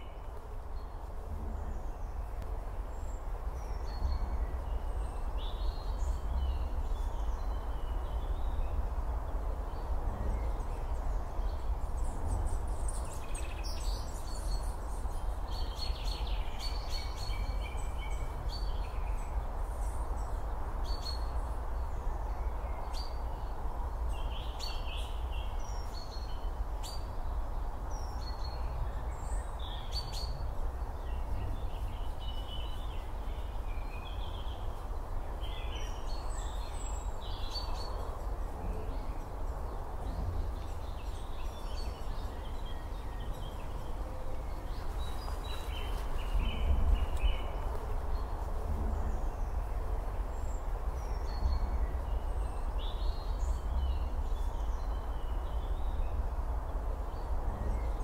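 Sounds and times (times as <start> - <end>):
outdoor rumble and hiss: 0.0 - 58.0
songbirds chirping: 0.0 - 58.0.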